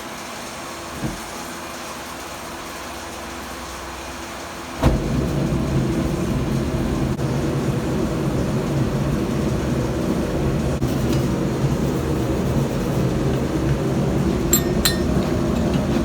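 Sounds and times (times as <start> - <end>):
machine motor humming with hiss: 4.8 - 16.0.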